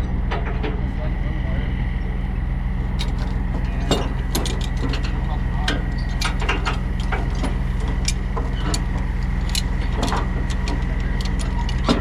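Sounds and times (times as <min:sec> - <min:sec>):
diesel engine idling: 0:00.0 - 0:12.0
chain clinking and knocking: 0:02.9 - 0:05.1.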